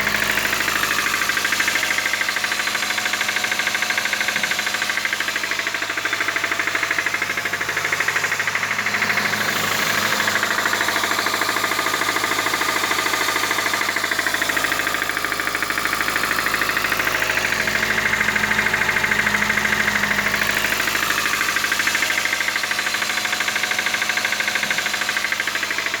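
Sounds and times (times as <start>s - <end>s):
engine knocking: 0.0s - 26.0s.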